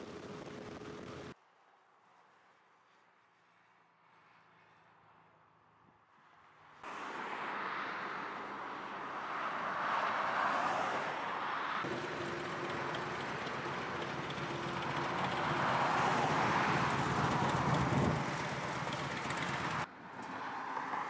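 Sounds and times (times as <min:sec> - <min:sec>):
motorcycle engines: 0:00.0 - 0:01.4, 0:11.8 - 0:20.9.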